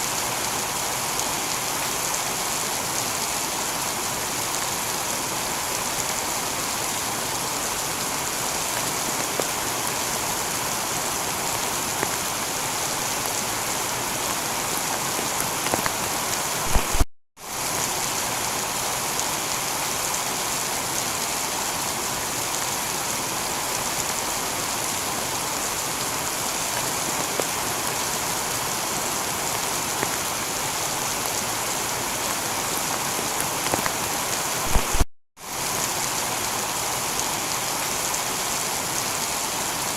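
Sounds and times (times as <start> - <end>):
heavy rain on a tiled roof: 0.0 - 39.9
sharp crackles: 15.6 - 17.1, 33.5 - 35.1.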